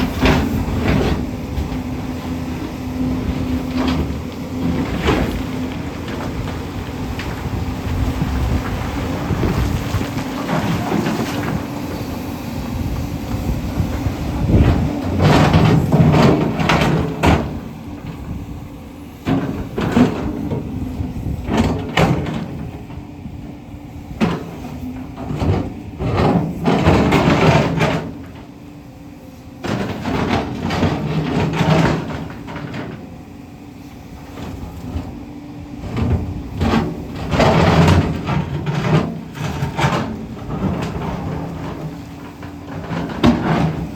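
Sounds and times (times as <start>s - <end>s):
excavator diesel engine running: 0.0s - 43.9s
bucket scraping and clattering on rock: 3.0s - 12.0s, 14.4s - 17.7s, 29.7s - 33.0s, 35.8s - 43.9s.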